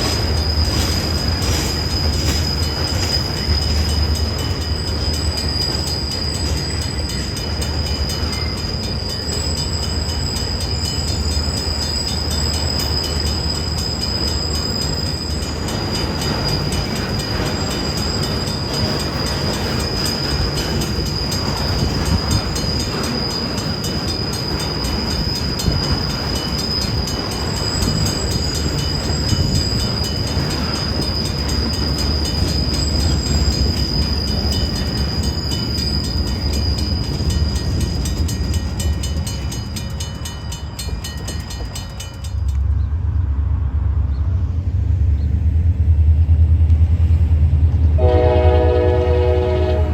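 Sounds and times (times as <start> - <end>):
high squeal: 0.0 - 42.8
train wheels on rails clicking: 0.0 - 43.0.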